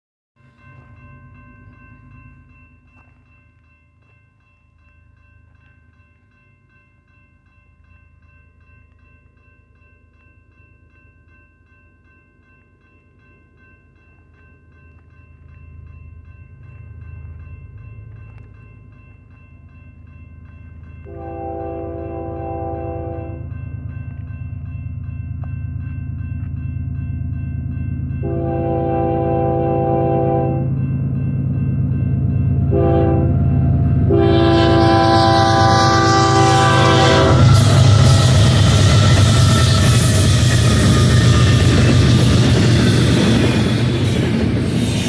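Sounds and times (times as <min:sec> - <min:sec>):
crossing signal ringing: 0:12.0 - 0:44.6
freight train rumble: 0:14.7 - 0:45.0
locomotive horn chord: 0:21.1 - 0:23.5, 0:28.2 - 0:30.7, 0:32.7 - 0:33.4, 0:34.0 - 0:39.8.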